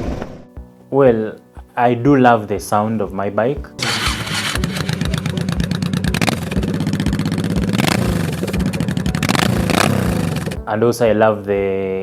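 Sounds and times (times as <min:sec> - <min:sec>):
motorcycle engine running: 0:03.8 - 0:10.7.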